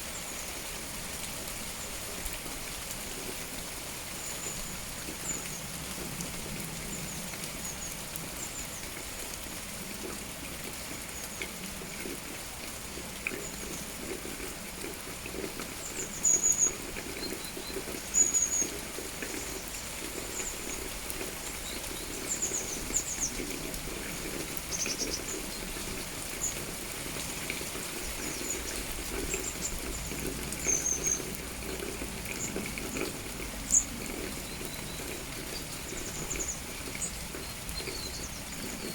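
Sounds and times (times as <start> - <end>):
songbirds chirping: 27.5 - 38.9.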